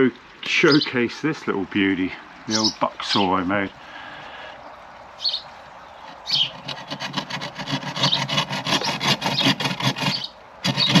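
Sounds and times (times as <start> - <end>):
hand saw rasping through wood: 6.5 - 11.0.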